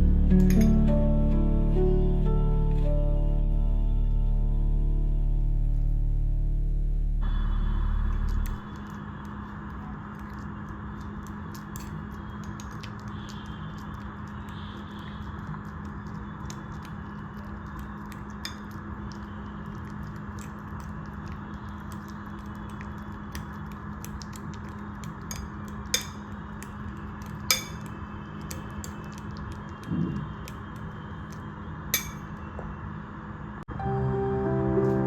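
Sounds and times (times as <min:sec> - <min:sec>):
utensils and dishes tapping: 0:17.8 - 0:18.9, 0:23.3 - 0:29.3, 0:32.0 - 0:32.4
ringing clinks of metal or glass: 0:32.0 - 0:32.2.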